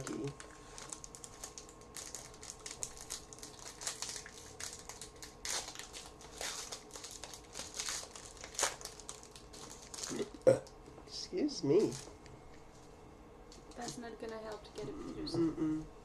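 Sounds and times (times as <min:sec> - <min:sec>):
foil wrapper crinkling: 0:00.0 - 0:10.3, 0:11.8 - 0:12.1.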